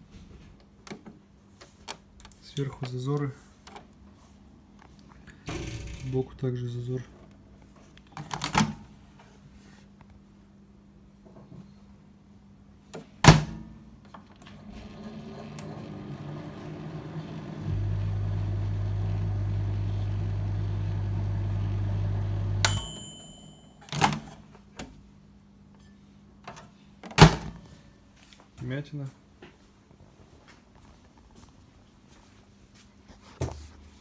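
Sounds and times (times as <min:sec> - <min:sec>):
fan and turntable whir: 0:14.3 - 0:22.9
microwave beep: 0:16.6 - 0:23.9.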